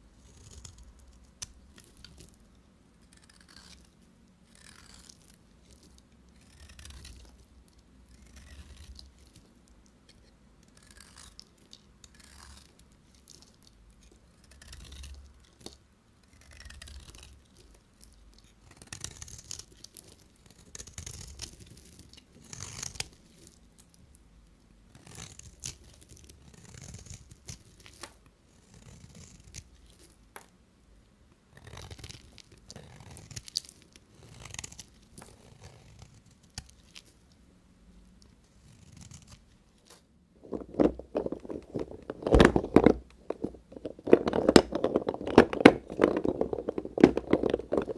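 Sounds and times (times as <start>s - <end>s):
knife cutting soap: 0.2s - 23.6s, 24.9s - 29.8s.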